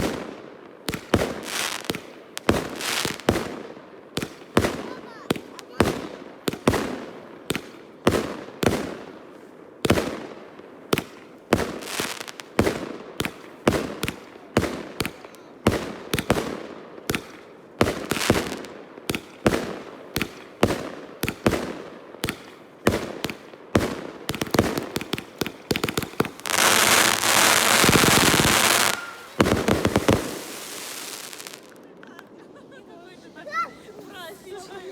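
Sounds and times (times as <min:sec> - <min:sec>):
fireworks bangs: 0:00.0 - 0:09.1, 0:10.9 - 0:31.8
fireworks crackling: 0:00.0 - 0:10.2, 0:11.0 - 0:32.2.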